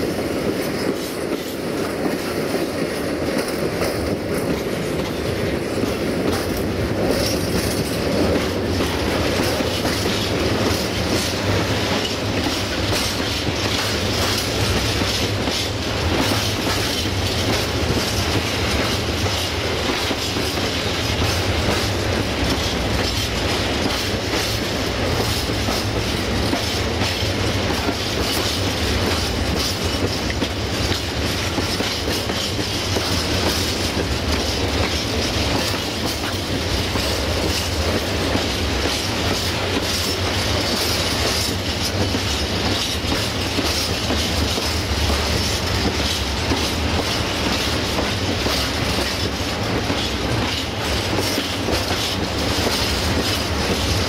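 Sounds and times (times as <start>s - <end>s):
train wheels clickety-clack: 0.0s - 54.0s.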